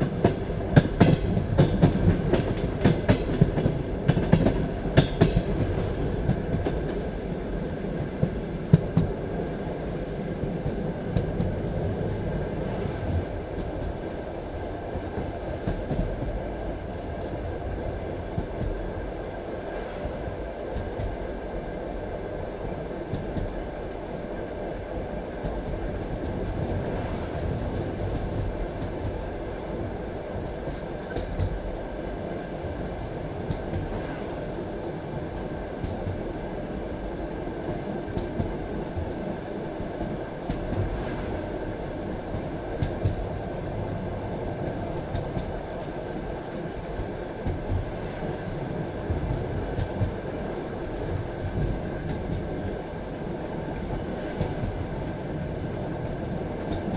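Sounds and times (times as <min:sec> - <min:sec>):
train wheels rumbling on rails: 0:00.0 - 0:56.9.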